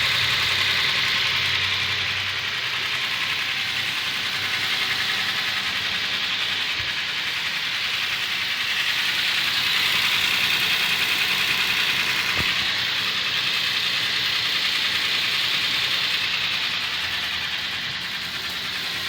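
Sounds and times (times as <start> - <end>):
fast steady engine ticking: 0.0 - 19.0
pickup engine idling: 0.0 - 19.0.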